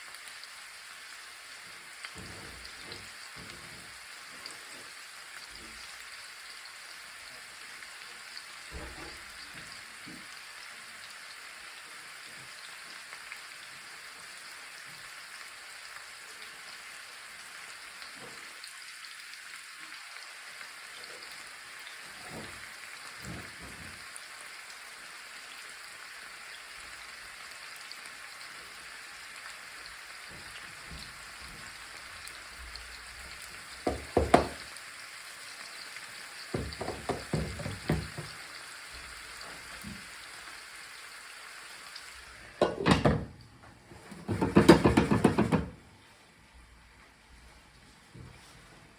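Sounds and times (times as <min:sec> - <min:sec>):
food sizzling in a pan: 0:00.0 - 0:46.4
soft knocks: 0:33.8 - 0:34.6, 0:36.6 - 0:38.4, 0:44.2 - 0:45.8
sharp knocks: 0:33.9 - 0:34.6, 0:36.6 - 0:38.3, 0:44.3 - 0:45.7.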